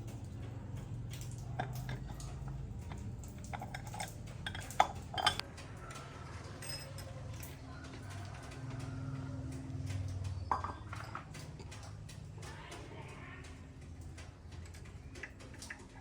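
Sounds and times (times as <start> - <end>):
metal tools clinking: 2.9 - 5.4, 6.6 - 7.6.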